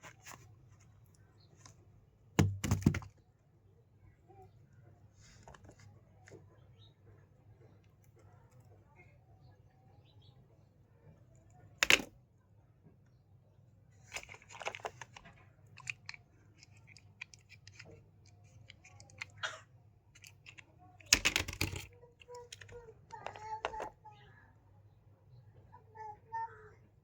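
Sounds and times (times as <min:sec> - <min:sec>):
scattered clicks and knocks: 0:20.2 - 0:23.9.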